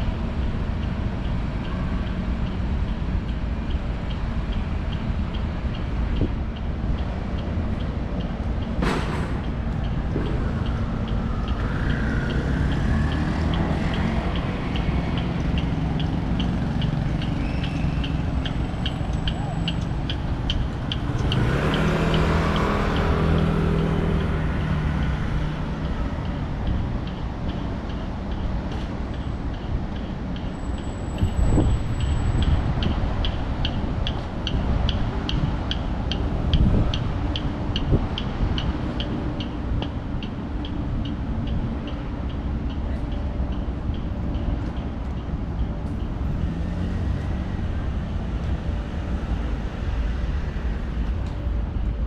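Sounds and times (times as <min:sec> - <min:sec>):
vehicles passing: 0:00.0 - 0:52.0
loud engine going by: 0:08.8 - 0:26.9, 0:44.2 - 0:52.0.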